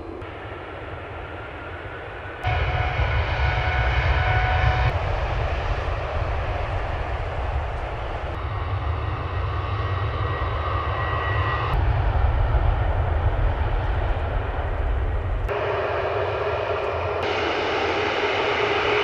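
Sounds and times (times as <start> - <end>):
airliner engines running: 0.0 - 19.0.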